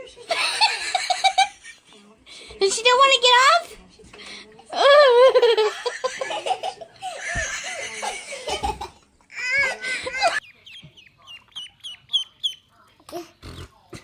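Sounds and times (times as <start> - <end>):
high bird peeps: 10.4 - 12.7.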